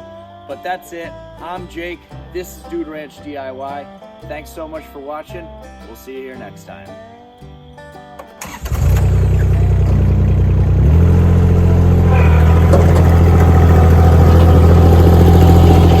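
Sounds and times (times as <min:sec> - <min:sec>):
small engine running: 0:08.5 - 0:16.0.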